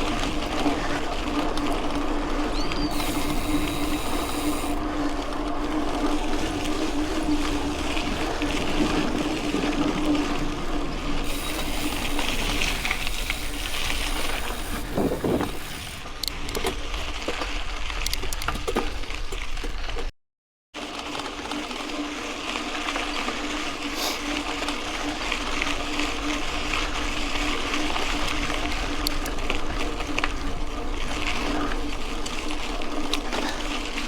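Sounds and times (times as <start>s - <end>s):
bike rattling and clicking: 0.0s - 20.1s, 20.8s - 34.0s
bike tyres on gravel: 0.0s - 20.1s, 20.8s - 34.0s
steady buzzing hum: 2.9s - 5.0s, 11.2s - 16.2s
wind rush: 11.2s - 16.0s.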